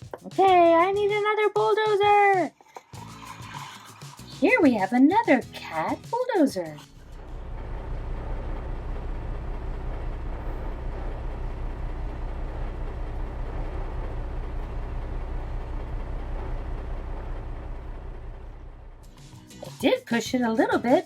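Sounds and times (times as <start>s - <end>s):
toy recorded engine rumble: 2.4s - 5.0s, 6.8s - 19.2s.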